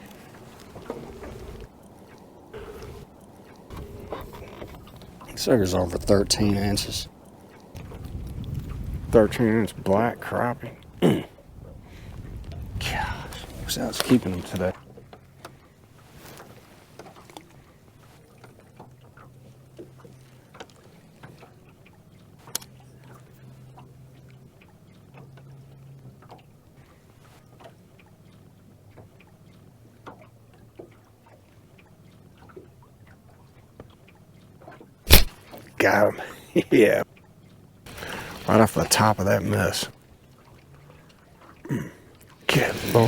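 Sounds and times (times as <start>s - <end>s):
trolling motor hum: 0.0s - 11.6s
clicks and knocks in boat: 0.0s - 36.1s.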